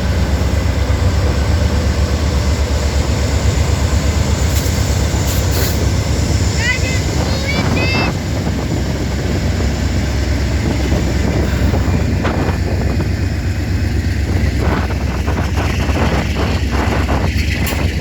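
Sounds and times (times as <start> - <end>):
train wheels clacking: 0.0 - 8.7
freight train rumbling: 0.0 - 18.0
wind buffeting microphone: 0.0 - 18.0.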